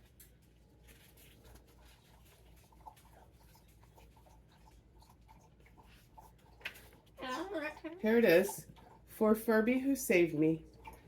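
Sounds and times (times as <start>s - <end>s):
faint small rustles: 0.0s - 4.7s.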